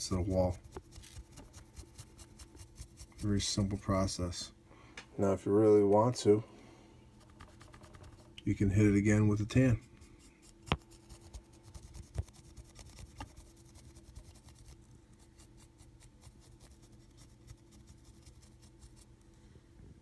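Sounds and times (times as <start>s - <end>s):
brush tapping on plaster: 0.0s - 3.8s, 7.2s - 8.4s, 9.5s - 19.1s
brush bristles scratching plaster: 0.0s - 4.0s, 7.2s - 8.3s, 9.1s - 19.2s.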